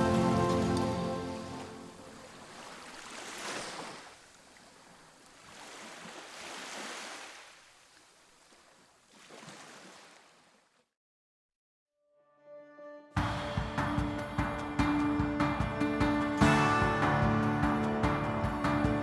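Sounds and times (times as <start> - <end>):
washing water: 0.0 - 3.3.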